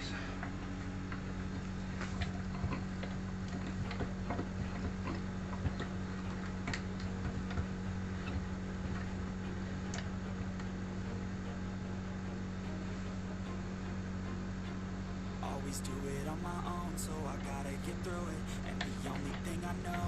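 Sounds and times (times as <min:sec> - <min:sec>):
light ticks and clicks: 0:00.0 - 0:10.8
low electrical hum: 0:00.0 - 0:20.0.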